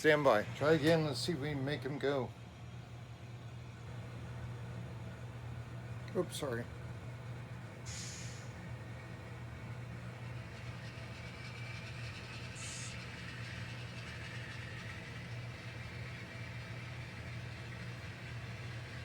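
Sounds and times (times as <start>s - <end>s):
model locomotive engine hum: 0.0s - 19.0s
short hiss: 7.8s - 8.5s, 12.6s - 13.0s.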